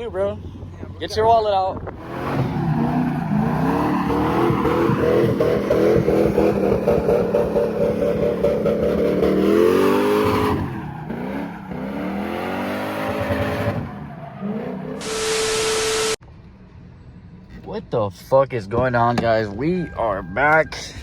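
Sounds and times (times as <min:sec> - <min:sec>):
car engine revving: 0:02.0 - 0:16.2.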